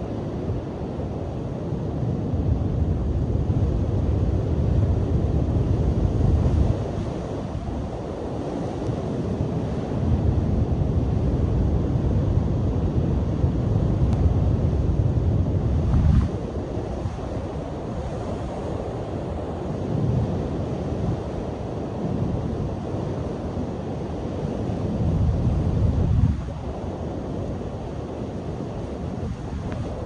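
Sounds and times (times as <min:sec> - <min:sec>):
wind buffeting microphone: 0:02.1 - 0:23.8, 0:24.8 - 0:30.0
waves crashing on beach: 0:05.6 - 0:13.7, 0:14.4 - 0:30.0.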